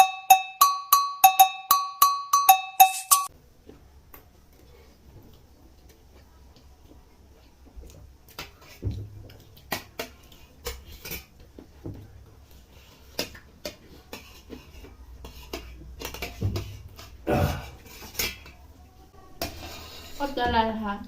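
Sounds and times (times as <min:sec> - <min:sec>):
spoons clinking against bowls: 0:00.0 - 0:03.3.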